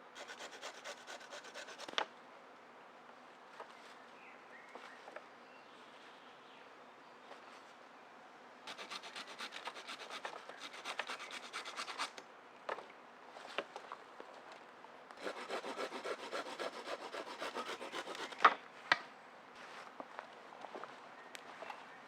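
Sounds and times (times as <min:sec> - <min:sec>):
hand saw rasping through wood: 0:00.2 - 0:02.0, 0:08.7 - 0:12.1, 0:15.2 - 0:18.4.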